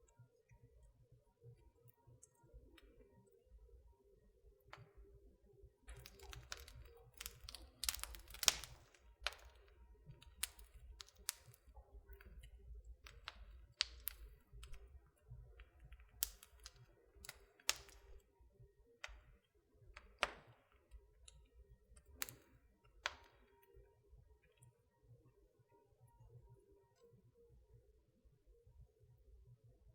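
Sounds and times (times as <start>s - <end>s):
wood fire crackling and popping: 5.9s - 18.3s, 19.0s - 23.6s.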